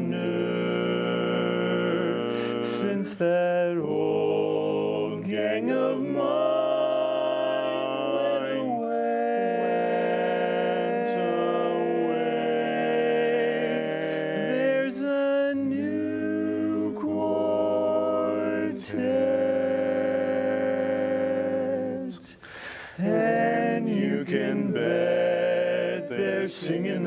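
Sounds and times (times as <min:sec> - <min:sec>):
male quartet singing a cappella: 0:00.0 - 0:27.0.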